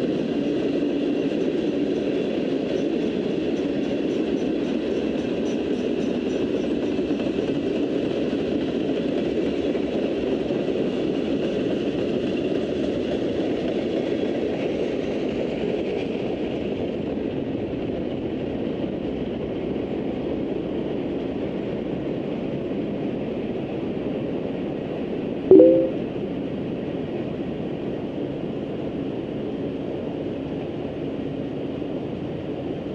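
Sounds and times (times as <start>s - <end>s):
brief loud tone: 25.5s - 26.0s.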